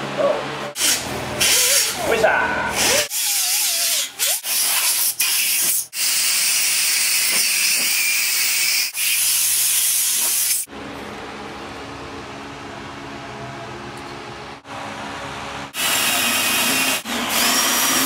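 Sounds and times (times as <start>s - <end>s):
steady machine hum: 10.7s - 17.3s.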